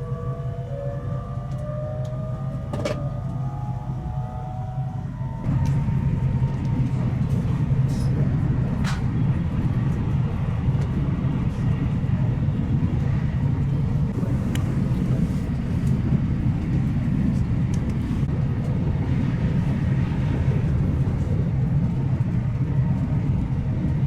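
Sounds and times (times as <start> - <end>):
train rumbling inside carriage: 0.0 - 24.0.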